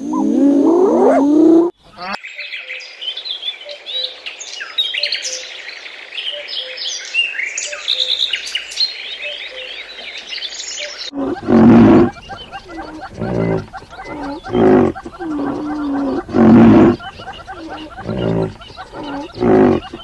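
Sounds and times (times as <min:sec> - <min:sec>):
songbirds chirping and trilling: 0:00.0 - 0:20.0
big cat roaring: 0:11.1 - 0:20.0.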